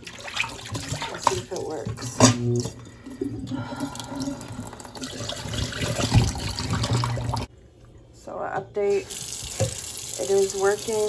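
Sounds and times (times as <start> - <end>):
tap water pouring into sink: 0.0 - 3.0, 3.8 - 7.5, 9.1 - 11.0
garbage disposal motor hum: 0.0 - 11.0.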